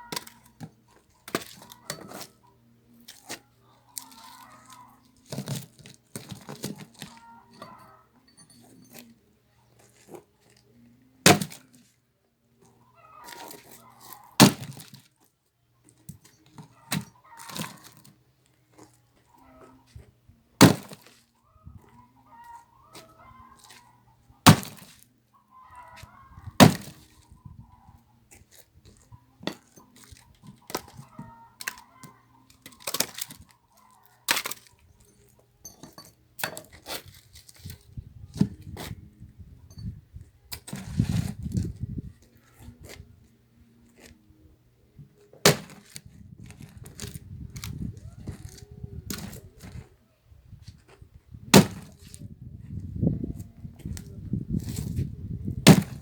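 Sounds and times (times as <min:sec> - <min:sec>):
axe splitting firewood: 0:00.0 - 0:02.3, 0:05.3 - 0:07.8, 0:11.2 - 0:11.7, 0:14.4 - 0:15.0, 0:16.1 - 0:18.0, 0:20.6 - 0:21.2, 0:24.4 - 0:25.0, 0:26.6 - 0:27.2, 0:32.5 - 0:33.5, 0:34.3 - 0:34.7, 0:40.6 - 0:41.8, 0:45.3 - 0:49.8, 0:51.4 - 0:52.2, 0:53.8 - 0:56.0.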